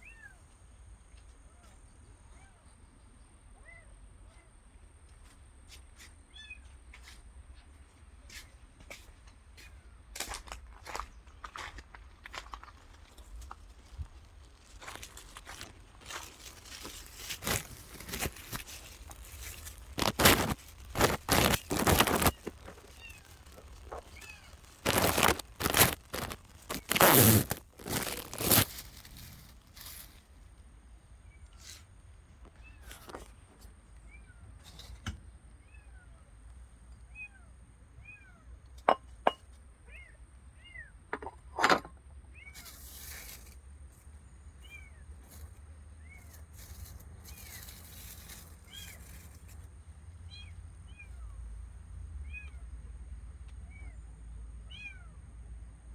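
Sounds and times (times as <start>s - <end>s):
rustling and crackling: 10.2s - 30.6s, 32.4s - 33.7s, 42.6s - 44.2s, 45.2s - 49.8s.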